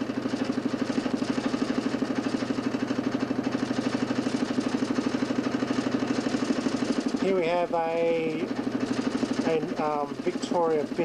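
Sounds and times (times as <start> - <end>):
motor humming with fast throb: 0.0 - 11.0.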